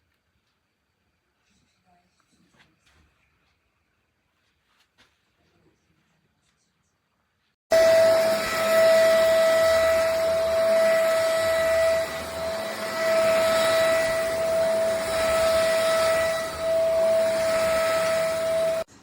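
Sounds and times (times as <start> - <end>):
stick vacuum motor whining: 7.7 - 19.0.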